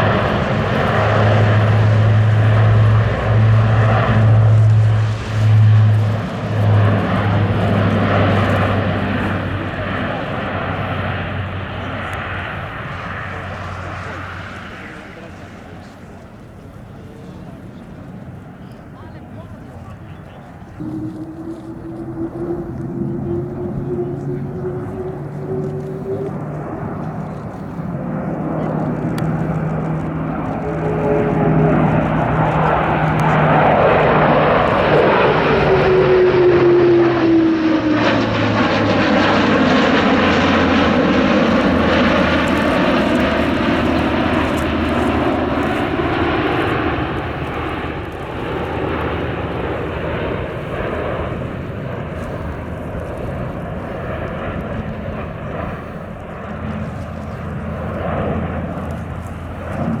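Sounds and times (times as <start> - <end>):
propeller aircraft passing by: 0.0 - 60.0.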